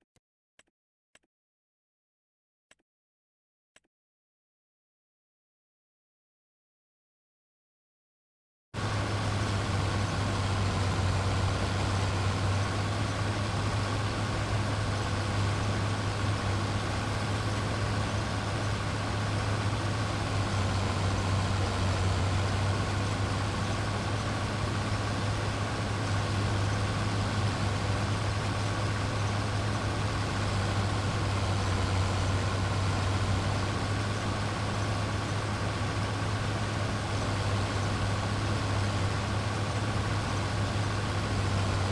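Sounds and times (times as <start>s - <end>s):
harvester engine humming: 8.8s - 41.9s.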